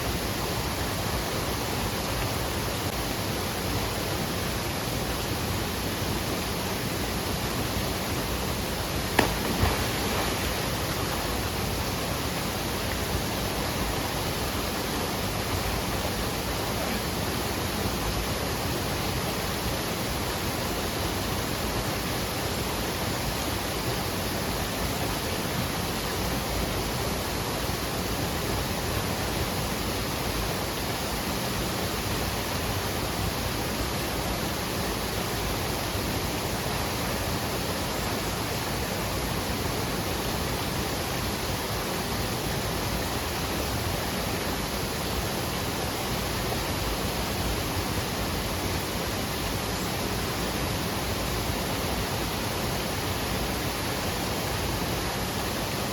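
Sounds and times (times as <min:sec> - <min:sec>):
waterfall roaring: 0:00.1 - 0:18.4.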